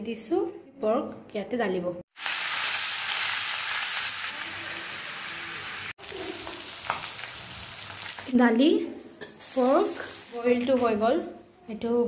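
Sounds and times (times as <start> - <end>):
meat sizzling in hot oil: 2.1 - 8.4, 9.4 - 10.9.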